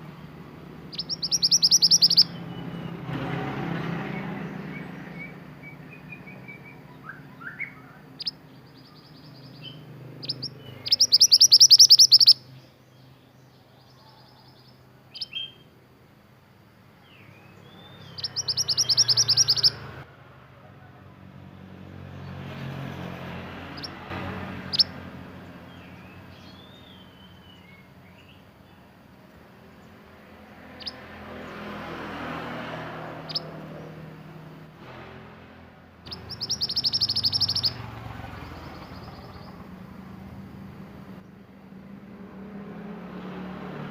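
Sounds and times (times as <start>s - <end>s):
bird rattling trills: 0.9s - 2.4s, 10.2s - 12.4s, 18.1s - 19.8s, 36.1s - 39.9s
bird chips and whistles: 0.9s - 2.9s, 9.6s - 12.4s, 17.7s - 19.8s, 36.1s - 37.9s.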